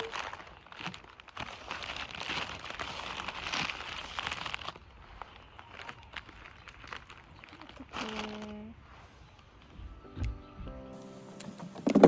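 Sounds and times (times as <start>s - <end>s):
wrapping crinkling: 0.0s - 9.0s.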